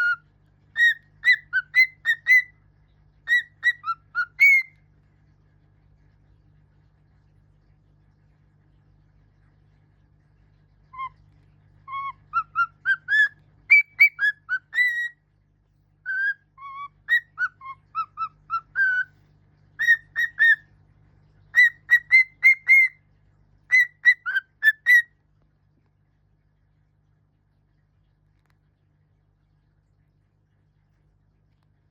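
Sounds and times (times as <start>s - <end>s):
bird whistling a tune: 0.8s - 2.5s, 3.3s - 4.7s, 11.9s - 15.2s, 16.1s - 19.1s, 19.8s - 20.6s, 21.5s - 23.0s, 23.7s - 25.1s.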